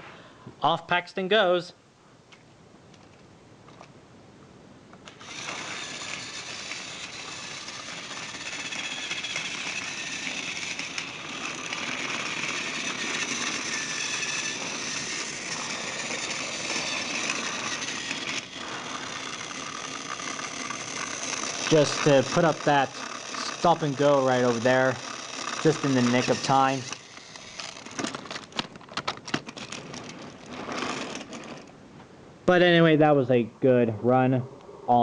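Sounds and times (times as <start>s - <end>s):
toy train motor whirring: 5.0s - 31.8s.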